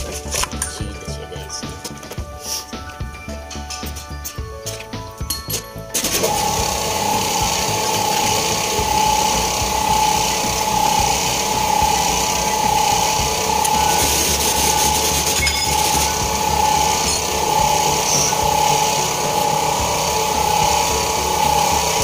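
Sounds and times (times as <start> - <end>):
machine running with high whine: 5.9 - 22.0.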